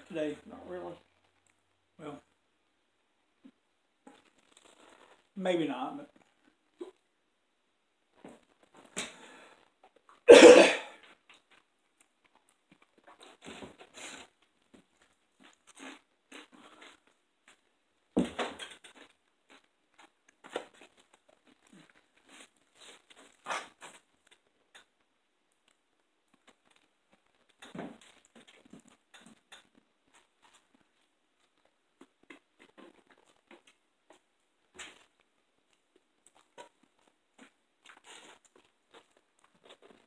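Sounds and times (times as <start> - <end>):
chewing and crunching: 15.0 - 17.7, 34.8 - 40.0.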